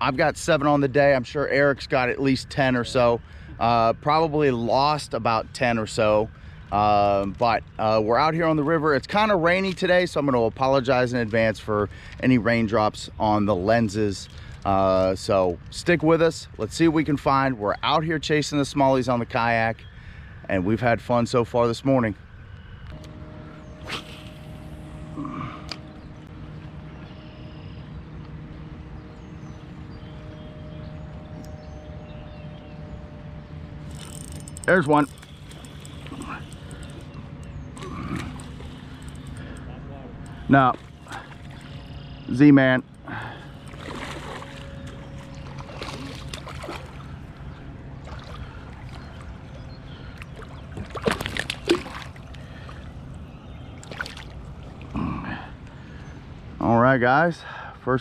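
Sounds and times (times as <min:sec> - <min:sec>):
faint low hum: 0:00.0 - 0:57.8
river water wash: 0:22.9 - 0:57.8
sharp knocks and splashes: 0:43.6 - 0:47.1, 0:50.2 - 0:52.3, 0:53.8 - 0:54.4.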